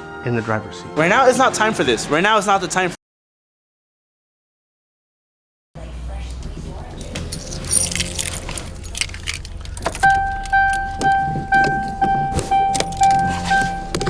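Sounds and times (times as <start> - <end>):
keys jangling: 6.9 - 14.0
car warning chime beeping: 7.4 - 14.0.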